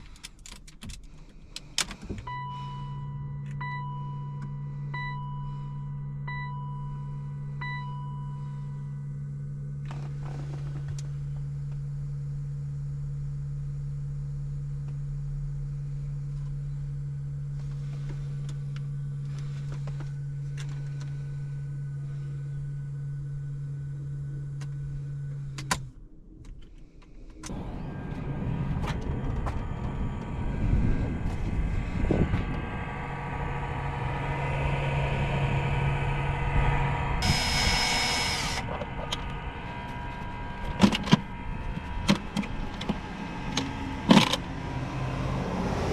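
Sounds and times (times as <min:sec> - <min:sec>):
loud uneven noise: 0:27.5 - 0:45.4
cooling fan humming: 0:27.5 - 0:45.9.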